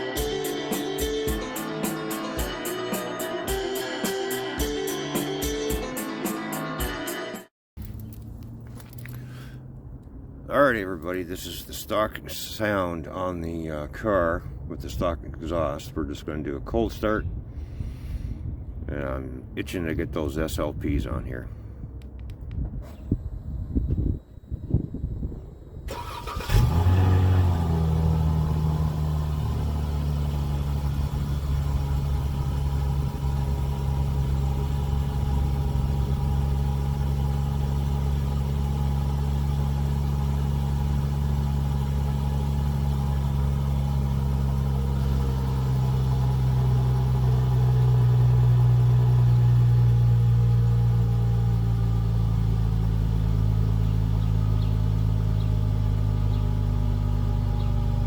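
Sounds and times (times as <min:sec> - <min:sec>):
car engine idling: 0:07.8 - 0:15.0, 0:20.9 - 0:58.0.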